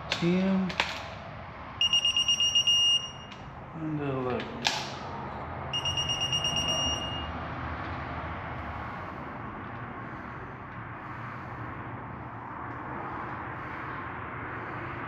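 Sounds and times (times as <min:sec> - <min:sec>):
torque wrench beeping rapidly: 0:05.8 - 0:07.3.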